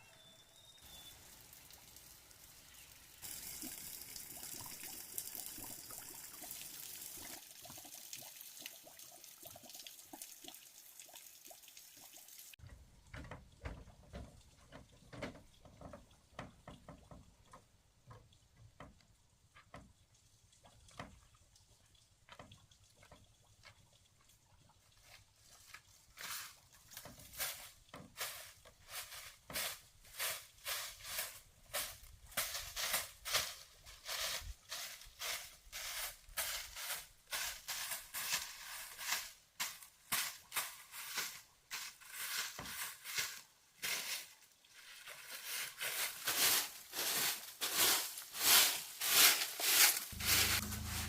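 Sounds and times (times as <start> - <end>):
water trickling and dripping: 0.8 - 33.4
water pouring and splashing: 0.9 - 51.0
irregular knocks and taps: 12.6 - 21.3, 22.2 - 24.1.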